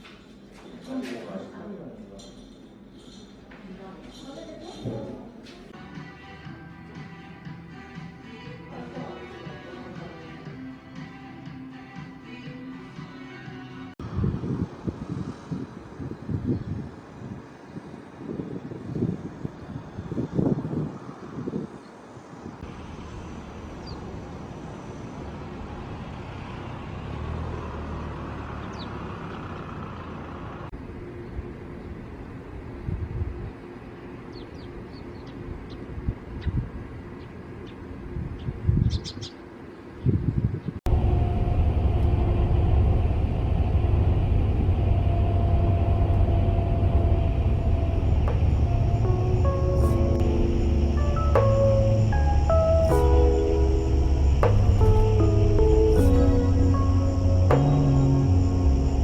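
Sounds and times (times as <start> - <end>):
road traffic rumble: 14.0 - 59.0
vehicle passing: 22.6 - 30.7, 40.9 - 59.0
low rumbling noise: 40.9 - 59.0
soft music notes: 46.0 - 59.0.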